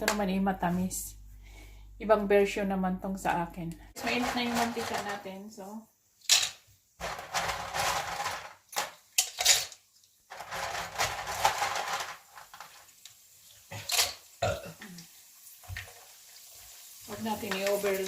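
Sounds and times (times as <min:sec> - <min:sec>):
pasta sizzling in hot oil: 0:08.0 - 0:18.0.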